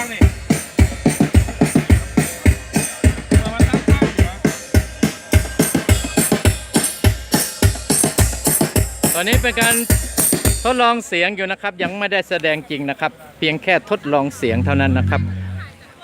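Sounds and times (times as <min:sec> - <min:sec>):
bass drum thumps: 0:14.3 - 0:15.7
cymbals: 0:14.3 - 0:15.8
live band over a pa: 0:14.3 - 0:16.0.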